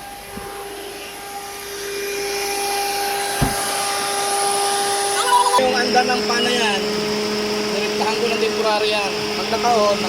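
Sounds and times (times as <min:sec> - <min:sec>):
cooling fan whine and air rush: 0:00.0 - 0:10.0
low thump: 0:03.4 - 0:03.8.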